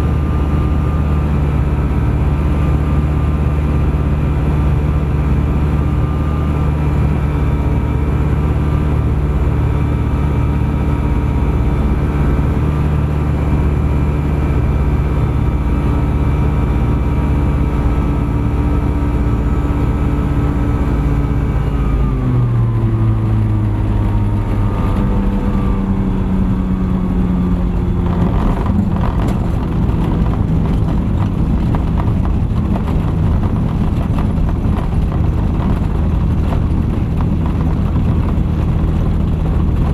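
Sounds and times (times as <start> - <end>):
ultralight aircraft engine and propeller: 0.0 - 39.9.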